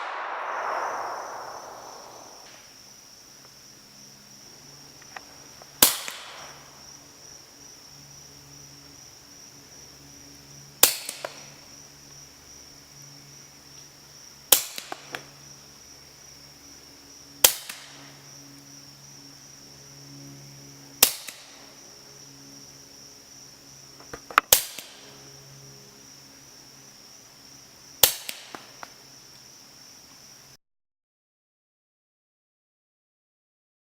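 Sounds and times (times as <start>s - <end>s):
suppressed pistol shots: 0.0s - 2.5s.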